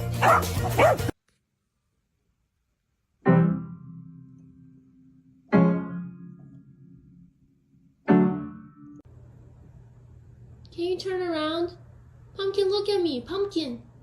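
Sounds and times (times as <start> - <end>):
piano notes ringing: 3.2 - 9.1.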